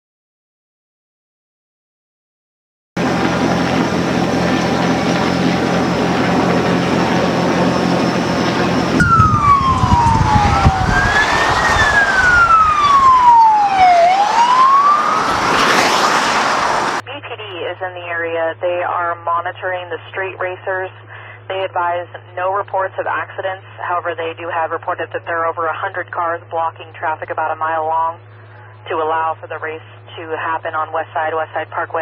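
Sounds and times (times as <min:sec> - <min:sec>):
police siren wailing: 0:03.0 - 0:17.0
loud rumbling hum: 0:03.0 - 0:31.9.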